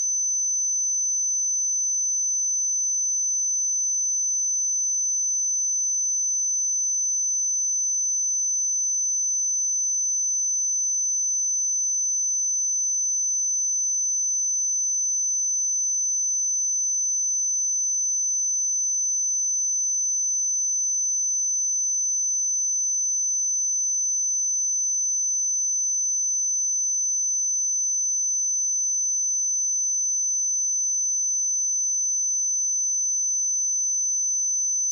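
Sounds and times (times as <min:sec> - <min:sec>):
high-pitched sine test tone: 0:00.0 - 0:34.9.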